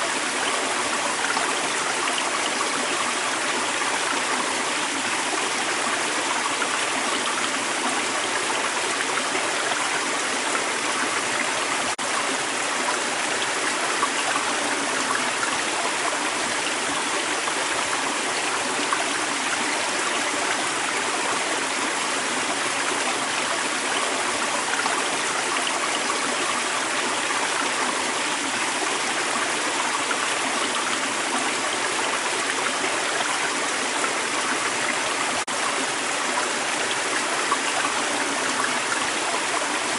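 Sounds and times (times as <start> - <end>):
water running over rocks: 0.0 - 39.9.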